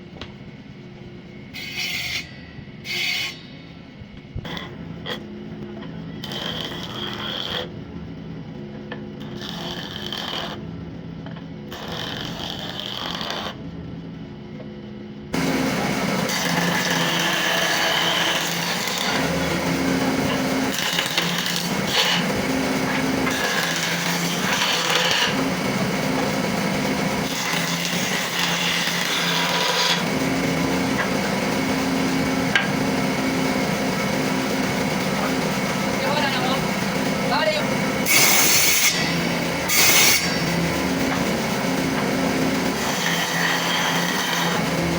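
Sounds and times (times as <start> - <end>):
electric power tool working wood: 6.2 - 7.7, 9.2 - 10.6, 11.7 - 13.6, 15.4 - 44.9.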